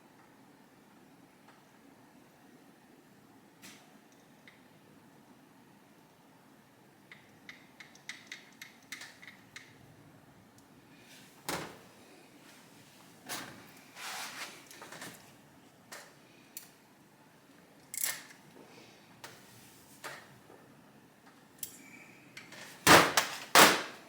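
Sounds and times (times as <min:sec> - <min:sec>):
tools clicking and knocking: 0:07.1 - 0:09.8.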